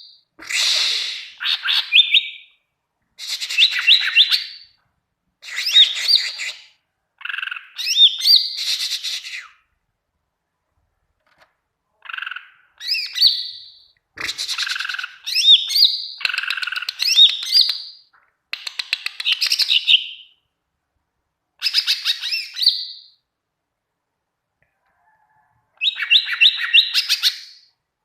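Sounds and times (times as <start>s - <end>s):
bird singing whistles and trills: 1.0s - 2.6s, 3.4s - 4.8s, 7.8s - 9.6s, 12.8s - 18.0s, 21.6s - 23.2s, 25.8s - 27.7s.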